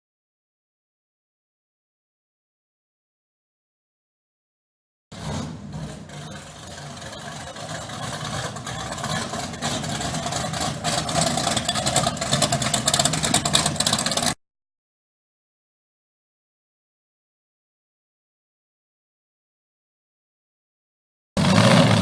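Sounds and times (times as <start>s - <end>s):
car engine running: 5.1s - 14.4s.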